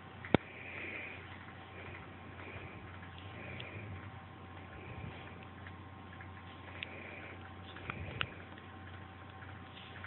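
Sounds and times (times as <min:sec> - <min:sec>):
small clicks: 0:00.2 - 0:10.0.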